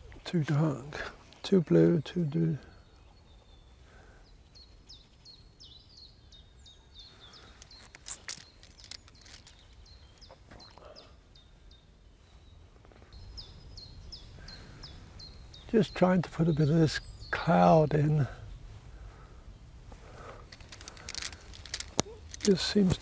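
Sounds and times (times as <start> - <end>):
quiet outdoor ambience: 0.0 - 23.0
sharp clicks: 20.5 - 23.0.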